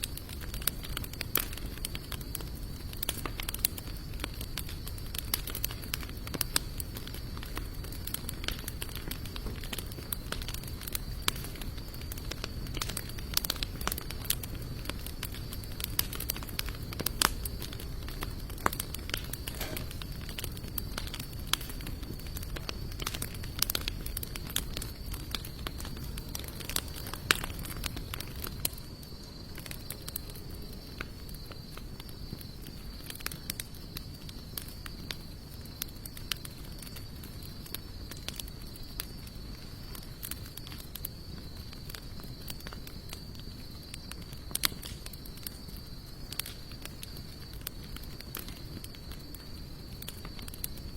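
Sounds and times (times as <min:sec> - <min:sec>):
fire rushing hiss: 0:00.0 - 0:33.7
campfire crackling and popping: 0:00.0 - 0:50.9.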